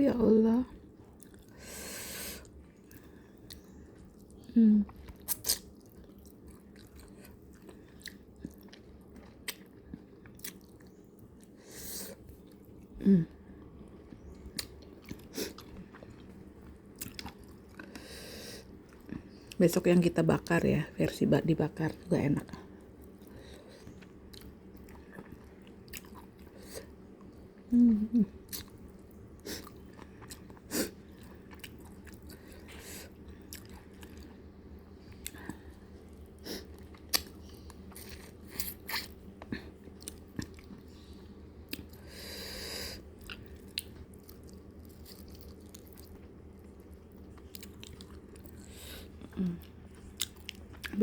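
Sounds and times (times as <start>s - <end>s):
chewing fried fish: 0.8s - 1.6s, 2.4s - 20.6s, 21.8s - 51.0s
person murmuring: 27.7s - 28.3s.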